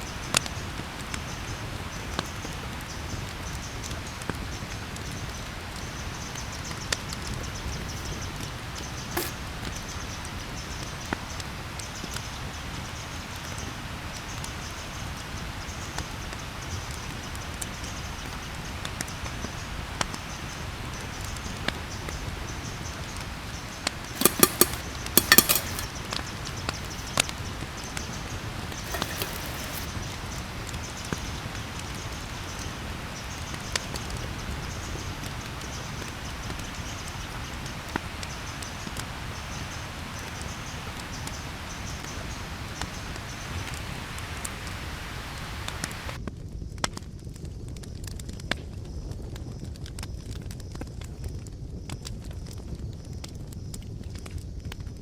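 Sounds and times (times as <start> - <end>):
campfire crackling: 24.2 - 25.9, 28.8 - 29.9.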